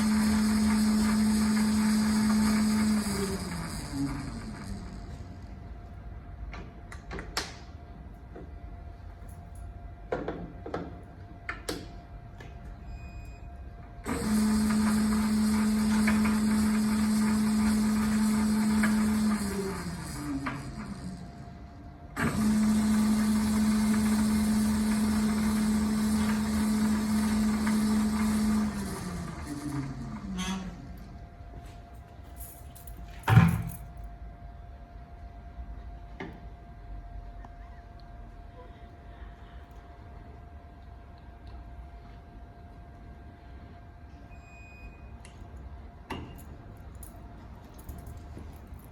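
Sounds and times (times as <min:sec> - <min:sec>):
lathe motor humming and spinning down: 0:00.0 - 0:05.7, 0:14.0 - 0:31.2.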